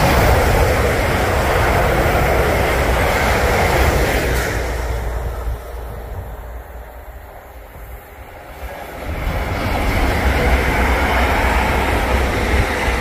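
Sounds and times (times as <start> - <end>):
hiss of wheels on rail: 0.0 - 13.0
train rumble: 0.0 - 13.0.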